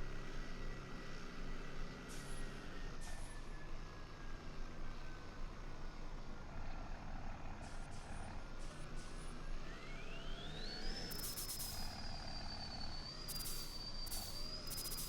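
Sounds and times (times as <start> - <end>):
high-pitched whine: 10.1 - 15.0.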